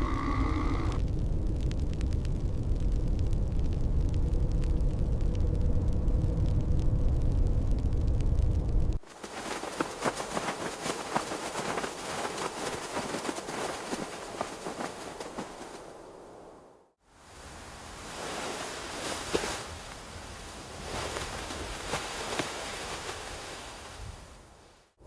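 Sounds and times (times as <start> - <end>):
dense irregular crackling: 0.0 - 15.8
blizzard wind rumbling: 0.0 - 25.0.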